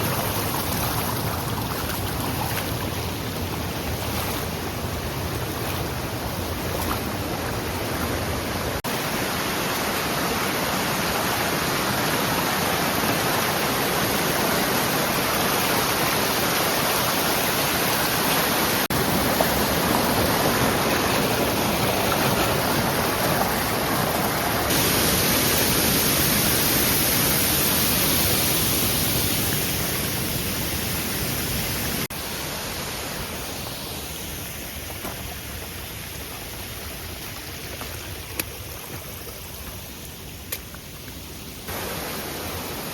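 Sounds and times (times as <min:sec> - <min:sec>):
rushing mountain water: 0:00.0 - 0:42.9.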